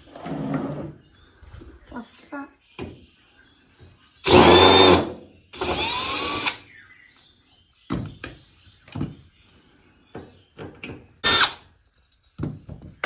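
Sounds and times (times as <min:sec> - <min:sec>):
electric screwdriver motor whine: 0:04.2 - 0:06.6, 0:11.2 - 0:11.6.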